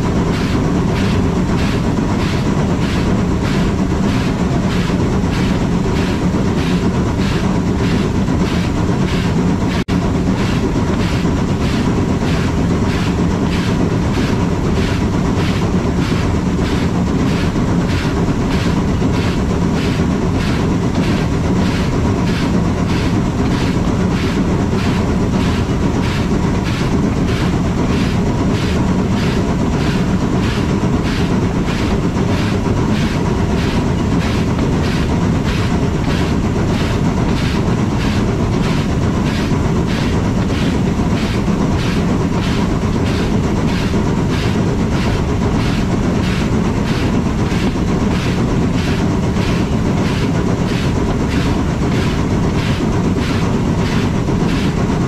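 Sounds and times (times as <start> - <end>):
train running rumble: 0.0 - 55.0.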